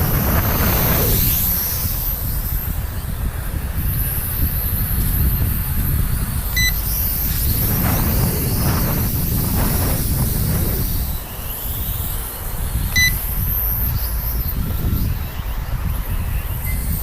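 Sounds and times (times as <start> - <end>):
wind buffeting microphone: 0.0 - 17.0
short electronic beep: 6.6 - 6.8, 13.0 - 13.2.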